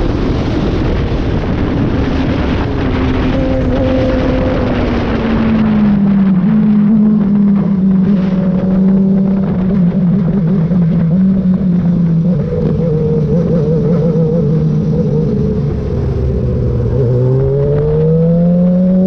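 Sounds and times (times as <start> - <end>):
motorcycle engine running: 0.0 - 19.0
wind rushing: 0.0 - 19.0.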